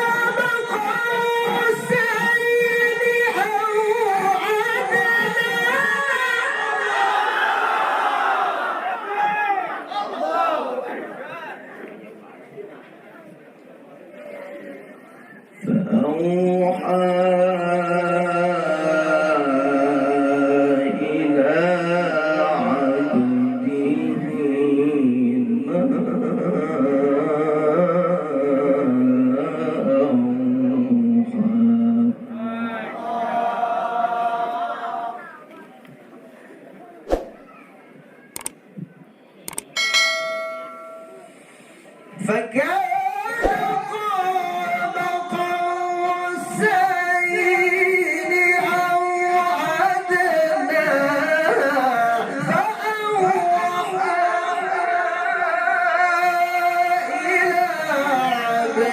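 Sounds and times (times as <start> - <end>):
man reciting melodically: 0.0 - 7.0, 15.6 - 33.0, 42.1 - 58.9.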